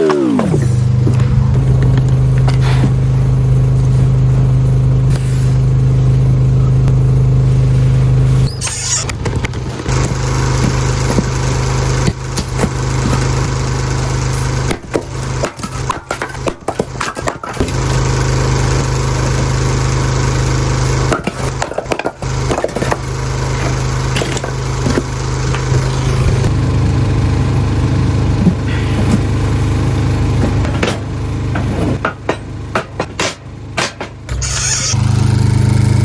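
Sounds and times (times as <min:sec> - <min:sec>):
small engine humming: 0:00.0 - 0:36.0
sharp knocks: 0:30.5 - 0:34.4.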